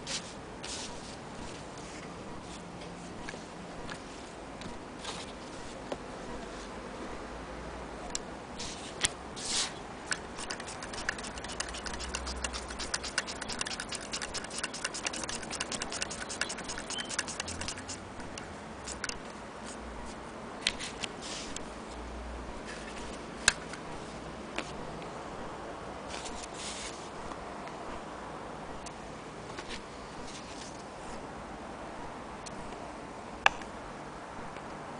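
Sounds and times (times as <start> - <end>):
sewing machine ticking: 10.4 - 18.0.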